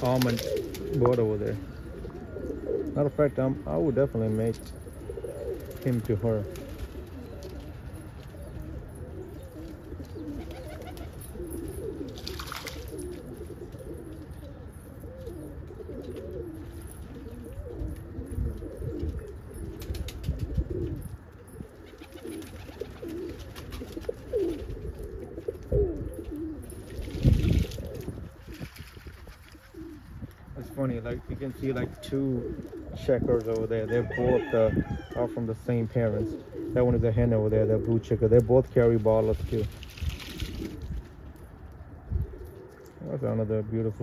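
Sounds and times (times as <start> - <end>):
pigeons cooing: 0.0 - 44.0.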